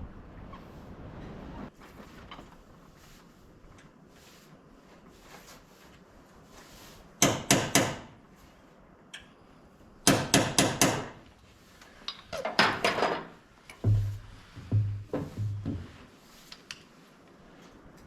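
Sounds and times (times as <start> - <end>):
hammer blows: 13.8 - 16.0.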